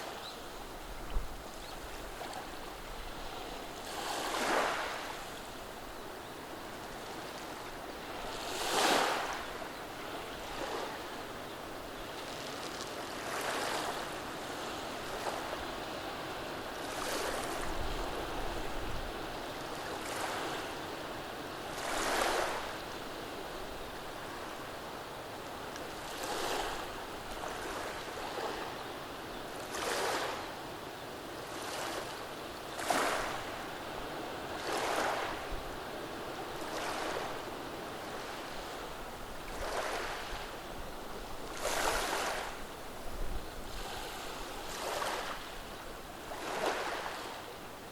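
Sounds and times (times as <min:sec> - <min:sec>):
waves washing over pebbles: 0:36.6 - 0:37.5, 0:39.5 - 0:40.4, 0:41.4 - 0:42.6.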